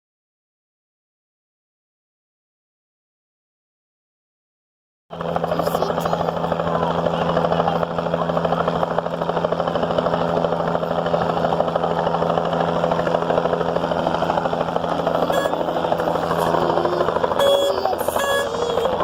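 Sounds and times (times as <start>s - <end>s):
helicopter engine hum: 5.1s - 19.0s
helicopter rotor chop: 5.1s - 19.0s.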